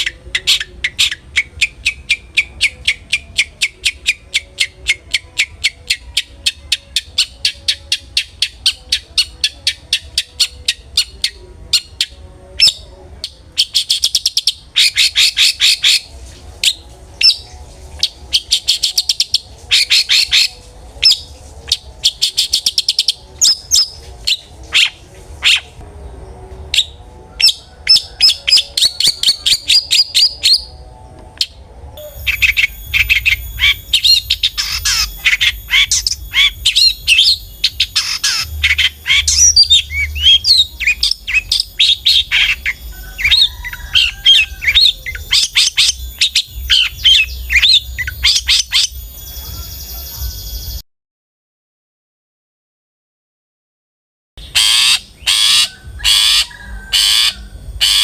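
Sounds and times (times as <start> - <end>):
bird ticking and trilled chatter: 31.4 - 50.8, 54.4 - 58.0.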